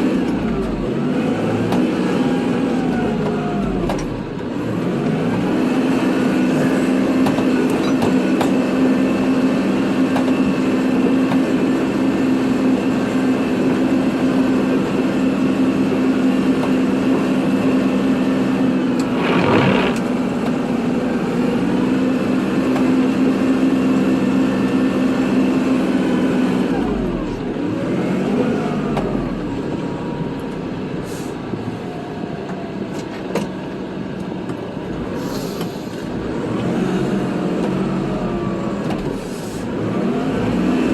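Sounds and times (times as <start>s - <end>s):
tractor diesel engine running: 2.0s - 36.4s
brief noisy burst: 19.0s - 20.2s.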